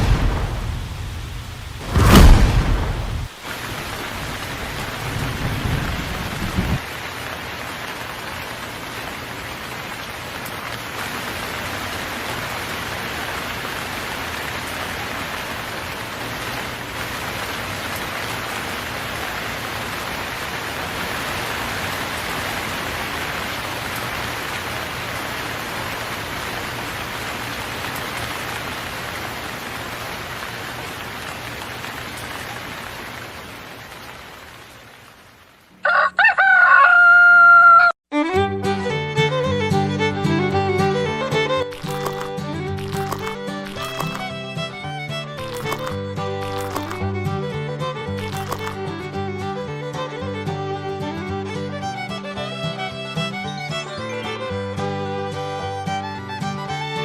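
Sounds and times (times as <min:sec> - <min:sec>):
low thunder rumble: 0:00.0 - 0:06.8
steady rain: 0:00.0 - 0:37.8, 0:39.6 - 0:57.0.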